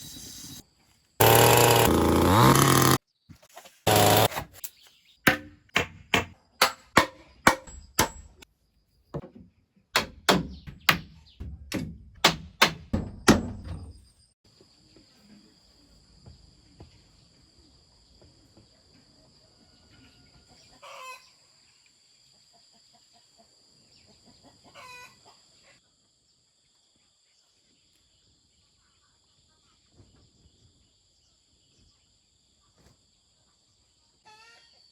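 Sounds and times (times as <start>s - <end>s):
sharp knocks: 5.3s - 8.4s, 10.0s - 14.0s.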